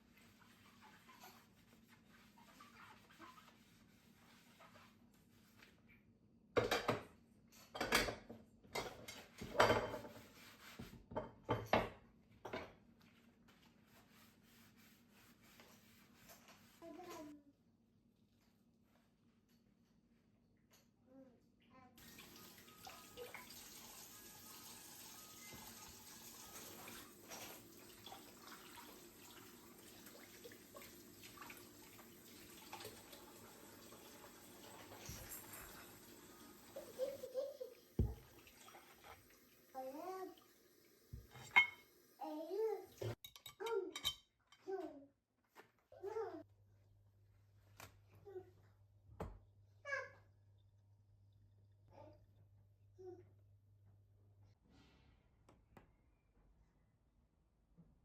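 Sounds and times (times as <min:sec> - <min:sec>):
tap water running into sink: 0:22.0 - 0:43.2.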